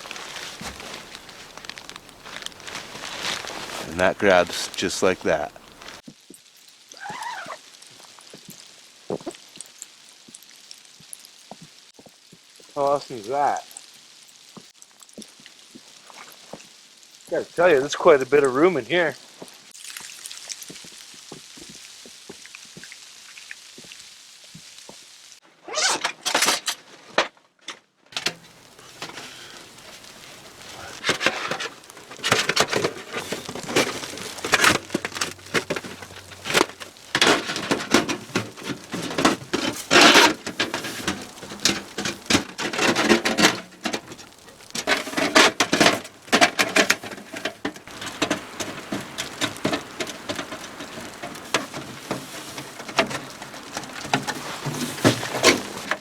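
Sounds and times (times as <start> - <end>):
tent fabric rustling and crinkling: 0.0 - 6.0, 24.6 - 27.2, 28.2 - 56.0.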